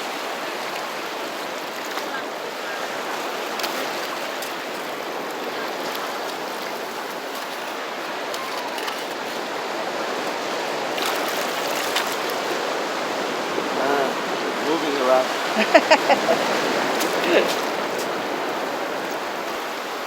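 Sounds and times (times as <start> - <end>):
sea surf on rocks: 0.0 - 20.0.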